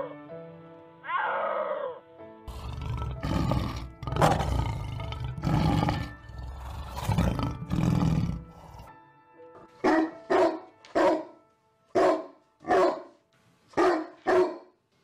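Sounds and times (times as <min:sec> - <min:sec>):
background music: 0:00.0 - 0:14.9
lion roaring: 0:02.5 - 0:08.9.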